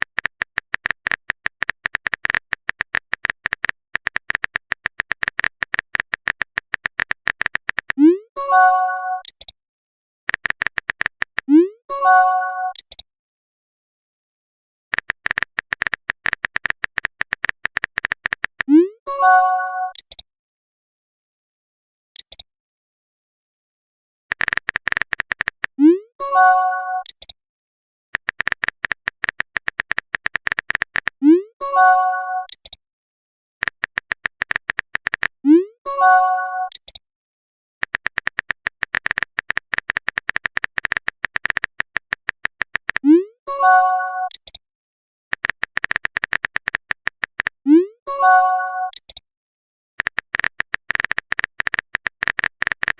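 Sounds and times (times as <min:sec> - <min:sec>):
high ticks: 0:00.0 - 0:08.0, 0:10.3 - 0:11.5, 0:14.9 - 0:18.7, 0:24.3 - 0:25.8, 0:28.2 - 0:31.2, 0:33.6 - 0:35.4, 0:37.8 - 0:43.0, 0:45.3 - 0:47.6, 0:50.0 - 0:52.9
phone keyboard typing clicks: 0:00.0 - 0:08.2, 0:10.3 - 0:11.6, 0:12.7 - 0:13.0, 0:14.9 - 0:18.9, 0:24.3 - 0:25.8, 0:28.2 - 0:31.2, 0:31.8 - 0:32.8, 0:33.6 - 0:35.4, 0:36.6 - 0:37.0, 0:37.8 - 0:43.2, 0:44.0 - 0:44.6, 0:45.3 - 0:47.6, 0:48.8 - 0:49.2, 0:50.0 - 0:52.9
multi-tone message chime: 0:35.9 - 0:36.7, 0:43.5 - 0:44.3, 0:48.1 - 0:48.9.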